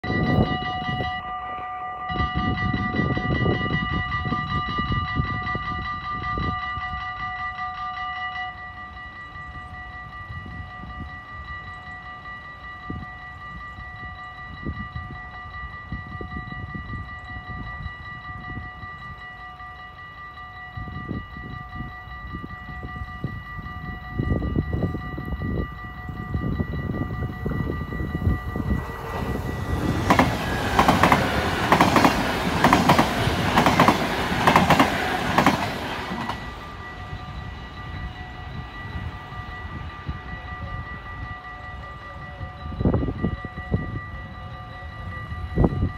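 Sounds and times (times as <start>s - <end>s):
level crossing bells ringing: 0.0s - 45.9s
train rushing past: 26.8s - 44.2s
train clattering over rails: 27.3s - 39.7s.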